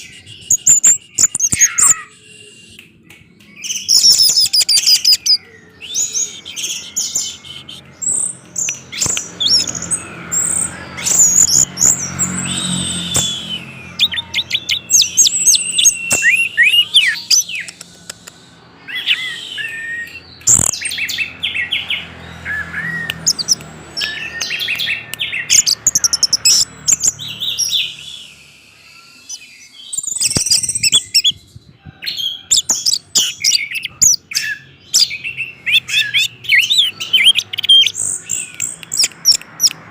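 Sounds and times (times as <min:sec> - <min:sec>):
thrush singing: 0:00.0 - 0:31.2.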